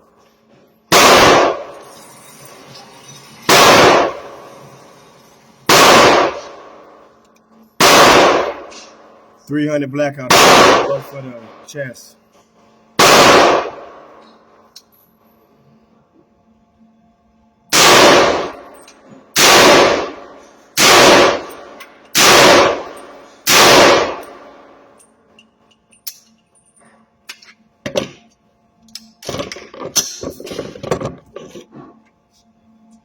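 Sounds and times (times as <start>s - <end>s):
rifle shots with ringing echo: 0.9s - 1.9s, 3.5s - 4.5s, 5.7s - 7.1s, 7.8s - 9.2s, 10.2s - 11.6s, 13.0s - 14.2s, 17.7s - 25.0s.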